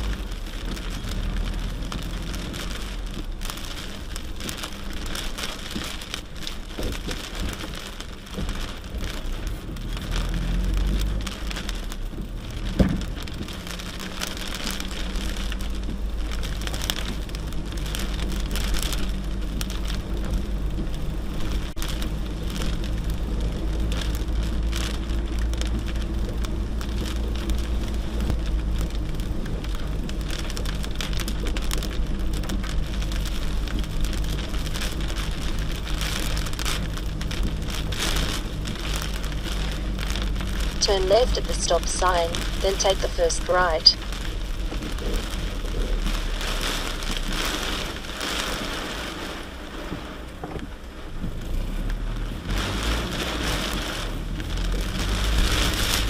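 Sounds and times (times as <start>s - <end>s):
crackling and ticking: 0.0s - 56.0s
truck engine drone: 34.1s - 46.2s.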